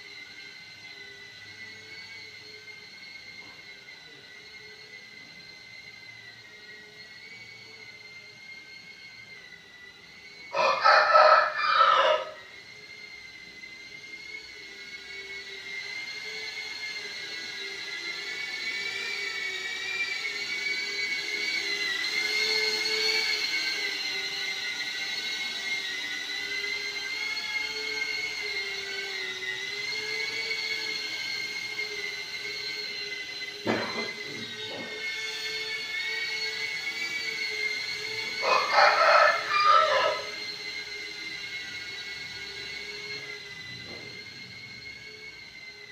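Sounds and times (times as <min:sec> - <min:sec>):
drone propellers whining: 0:00.0 - 0:45.9
rooster crowing: 0:10.5 - 0:12.6, 0:38.2 - 0:40.5.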